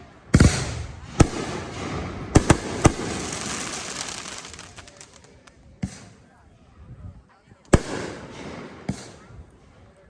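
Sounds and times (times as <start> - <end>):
fireworks bangs: 0.4 - 6.1
fireworks hissing crackle: 2.4 - 5.6.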